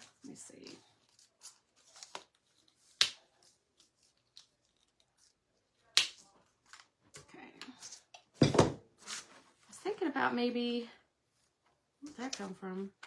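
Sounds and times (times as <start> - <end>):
knock and rustle: 8.4 - 8.8.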